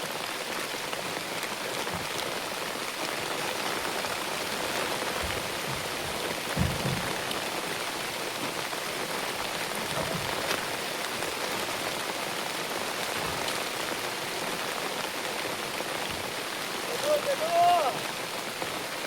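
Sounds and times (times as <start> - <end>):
steady hiss: 0.0 - 19.0
soft low thump: 5.2 - 7.4.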